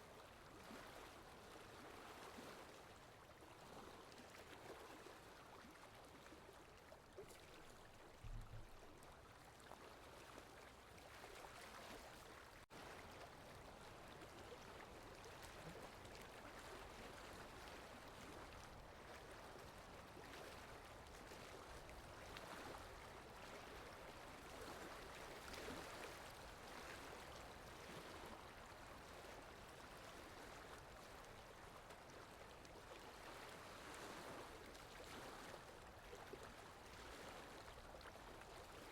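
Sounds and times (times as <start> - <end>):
rushing water: 0.2 - 38.9
soft low thump: 8.2 - 8.8.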